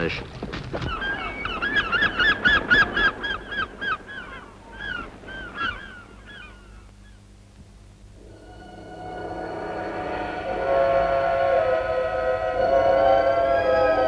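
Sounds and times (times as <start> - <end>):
birds calling rapidly: 0.0 - 7.2
steady held tone: 8.1 - 14.0.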